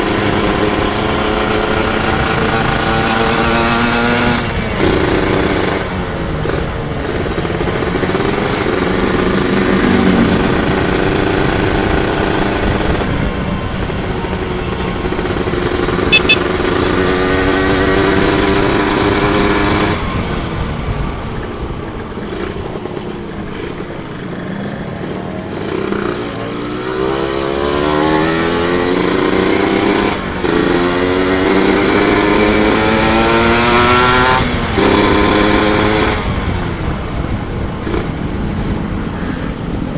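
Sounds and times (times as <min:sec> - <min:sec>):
motorcycle engine revving: 0:00.0 - 0:38.9
short high beep: 0:16.1 - 0:16.5.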